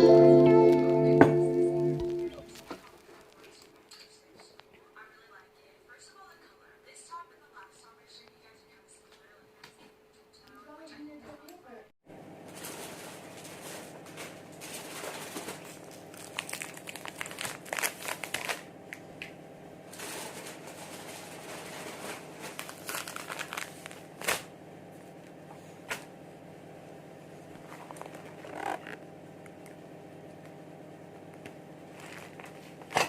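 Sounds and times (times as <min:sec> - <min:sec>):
steady low hum: 0:12.1 - 0:33.0
crinkling and rustling handling noise: 0:12.5 - 0:19.1, 0:19.9 - 0:25.7, 0:27.5 - 0:29.0, 0:31.9 - 0:33.0.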